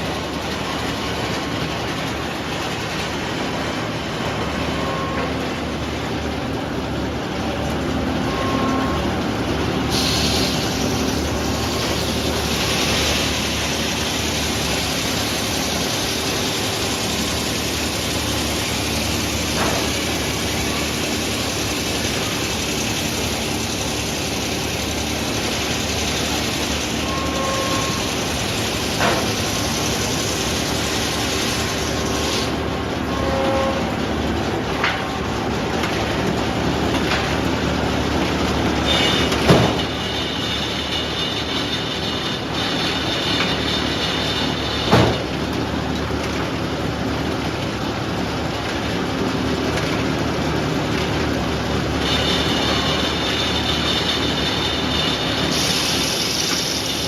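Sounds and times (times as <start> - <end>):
sawmill machine drone: 0.0 - 57.0
saw blade hissing through wood: 9.9 - 15.4, 55.3 - 57.0.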